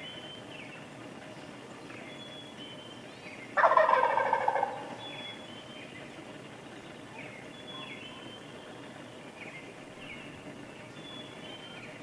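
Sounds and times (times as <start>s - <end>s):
faint songbirds chirping: 0.0s - 12.0s
turkey gobbling: 3.6s - 5.1s.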